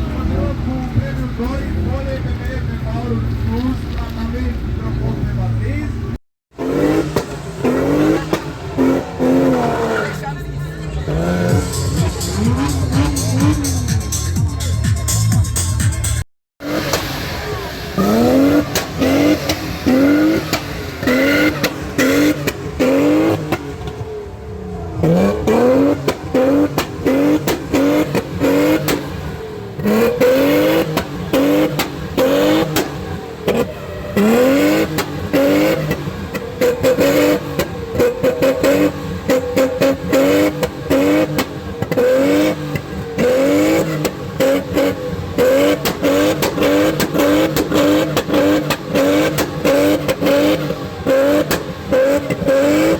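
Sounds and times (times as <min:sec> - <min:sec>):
car engine revving: 0:00.0 - 0:52.9
exhaust pops and crackles: 0:02.4 - 0:04.5, 0:18.6 - 0:24.2, 0:26.0 - 0:29.4, 0:30.8 - 0:33.8, 0:34.8 - 0:52.9.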